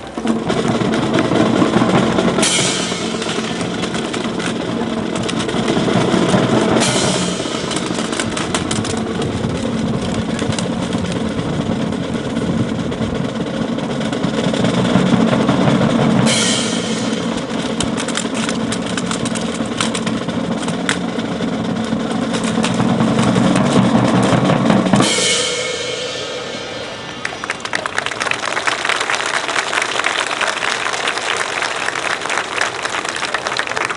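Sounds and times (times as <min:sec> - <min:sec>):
drums playing: 0:00.0 - 0:33.0
cymbal crashes: 0:00.3 - 0:19.2, 0:22.4 - 0:27.9.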